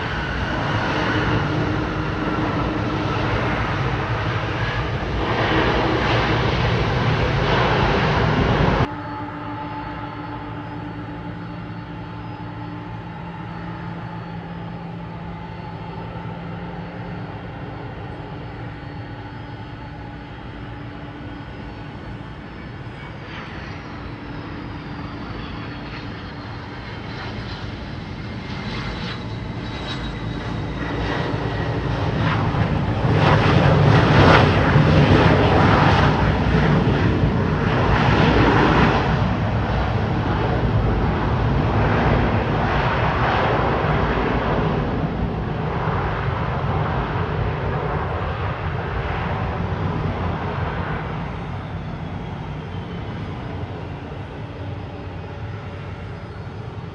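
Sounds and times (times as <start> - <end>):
jet engine hum with high whine: 0.0 - 56.9
jet rush of passing airliner: 0.0 - 56.9.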